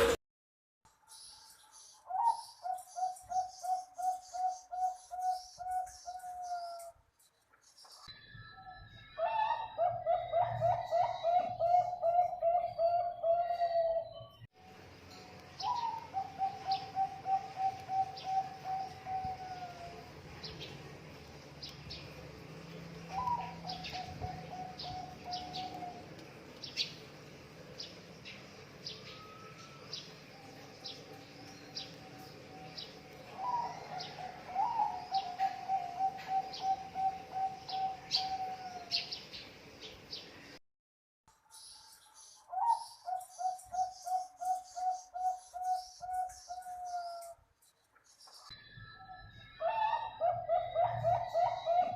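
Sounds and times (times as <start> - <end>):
doves cooing: 9.2 - 14.2, 15.6 - 20.1, 23.0 - 26.2, 31.8 - 39.1, 49.6 - 51.9.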